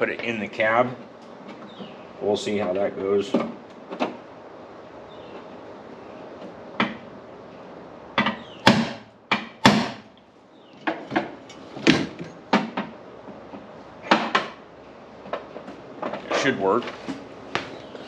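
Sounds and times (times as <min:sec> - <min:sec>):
knocks and clunks of tools: 0:06.4 - 0:07.0, 0:08.2 - 0:09.8, 0:10.8 - 0:14.6.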